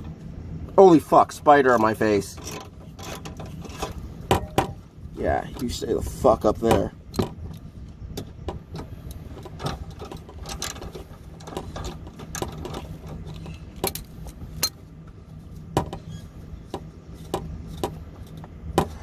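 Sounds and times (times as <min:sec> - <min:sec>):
low steady hum: 0:00.0 - 0:19.0
hand tools clicking and knocking: 0:06.6 - 0:14.8, 0:16.7 - 0:19.0.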